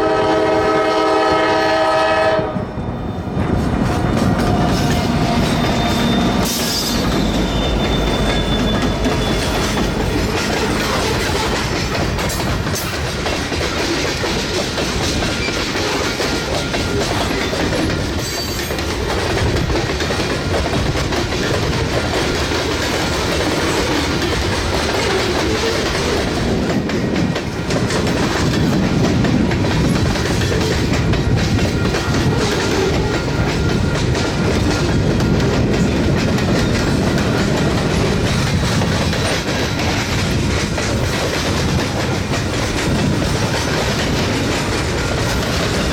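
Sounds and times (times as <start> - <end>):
train horn: 0.0 - 2.8
freight train cars clattering: 0.0 - 45.9.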